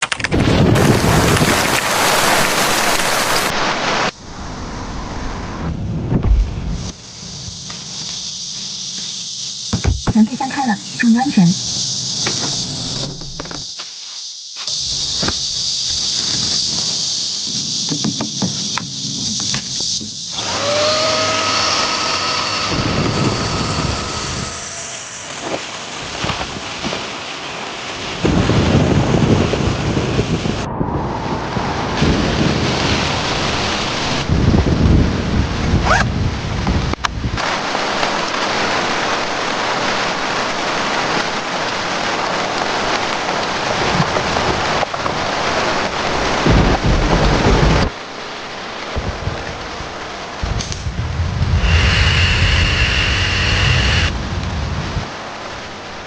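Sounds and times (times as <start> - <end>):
thunder rumbling: 0.3 - 7.6, 28.0 - 37.3, 43.6 - 48.0, 48.8 - 56.0
heavy rain hissing: 0.3 - 56.0.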